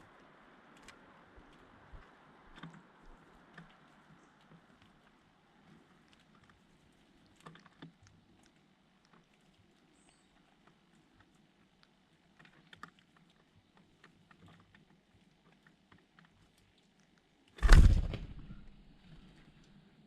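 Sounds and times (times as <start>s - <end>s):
birds pecking and hopping: 0.0s - 19.9s
loud sudden thump: 17.6s - 18.7s.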